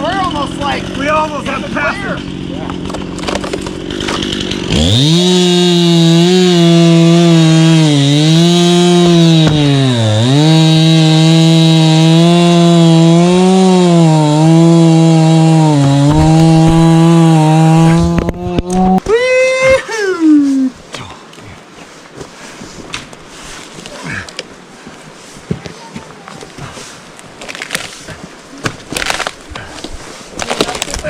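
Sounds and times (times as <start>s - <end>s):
chainsaw cutting wood: 0.0s - 19.1s, 28.9s - 29.4s.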